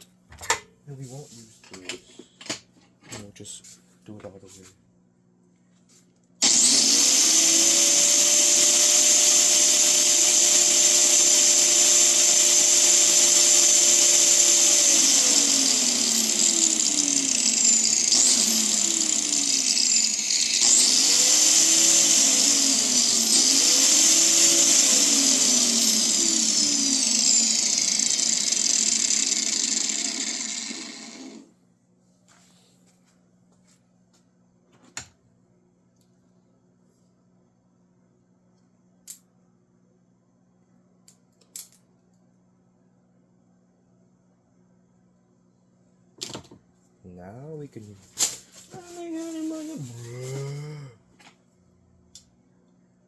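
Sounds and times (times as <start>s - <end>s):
power drill motor whining: 6.4s - 31.5s.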